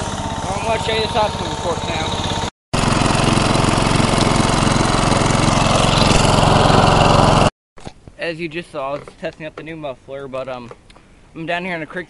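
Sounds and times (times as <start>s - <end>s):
riding lawn mower engine running: 0.0s - 7.5s.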